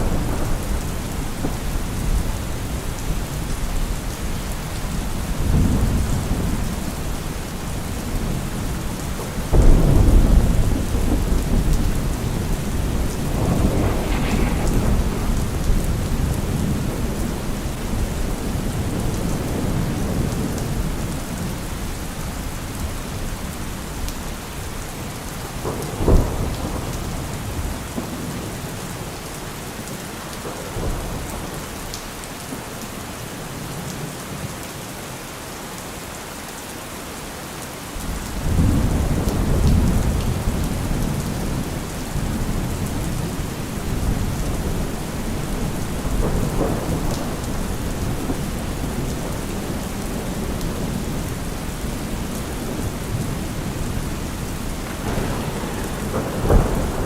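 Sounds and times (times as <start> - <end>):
thunder rumbling: 0.0 - 29.2, 38.4 - 57.0
steady rain: 0.0 - 57.0
sharp thunder crack: 9.5 - 20.3, 54.7 - 57.0.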